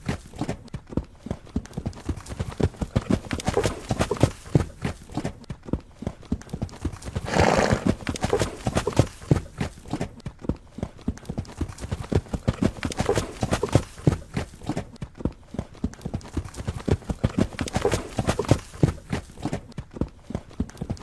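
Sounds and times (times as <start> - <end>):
horse hooves clip-clopping: 0.0 - 21.0
horse sound burst: 7.2 - 9.0.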